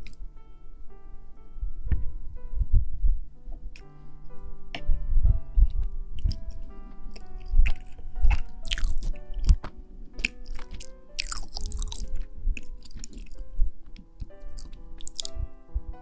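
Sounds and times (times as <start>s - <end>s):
soft background music: 0.0s - 16.0s
crackling and crunching: 5.6s - 15.4s.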